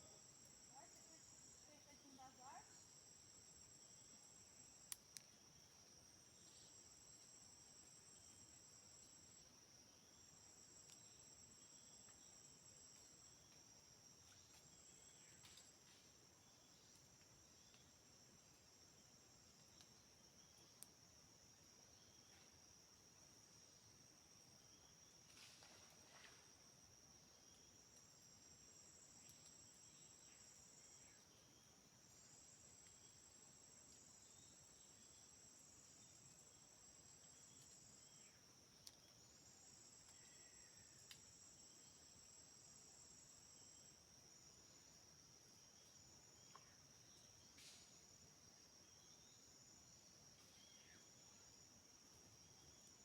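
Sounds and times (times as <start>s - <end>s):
crickets droning: 0.0s - 53.0s.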